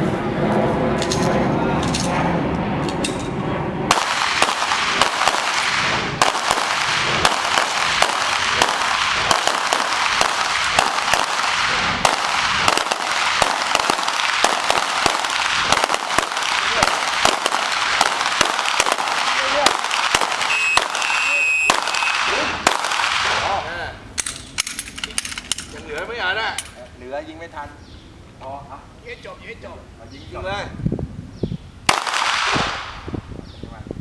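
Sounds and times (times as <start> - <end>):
rapid pistol fire: 3.9 - 23.6, 31.9 - 33.1.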